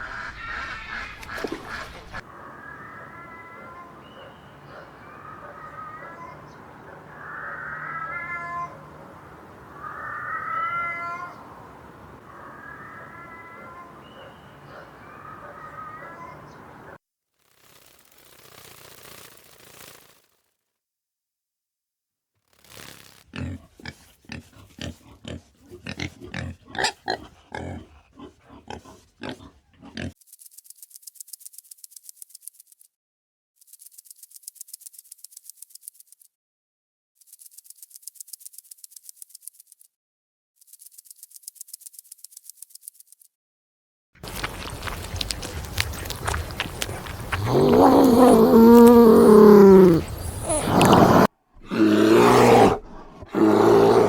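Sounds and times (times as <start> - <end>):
animal wailing meow-like calls: 2.4 - 11.7, 12.3 - 16.4, 46.8 - 54.0
dry high-pitched rattle: 17.4 - 20.4, 37.2 - 39.9, 40.6 - 43.3
animal grunting: 23.3 - 30.2, 44.3 - 54.0.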